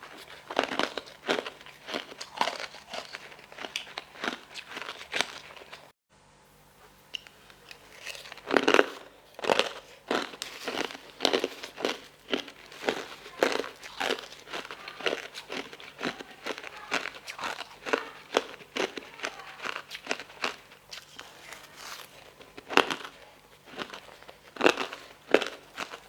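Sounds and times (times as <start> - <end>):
crunching and chewing food: 0.0 - 6.0, 6.8 - 26.0.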